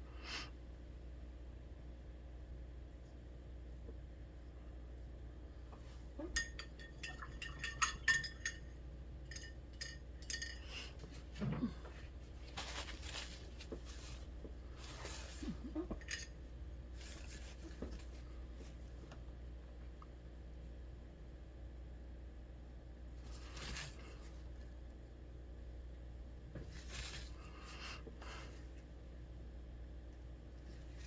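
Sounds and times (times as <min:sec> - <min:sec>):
paintbrush clinking in glass jar: 0:06.2 - 0:11.1, 0:15.9 - 0:16.4.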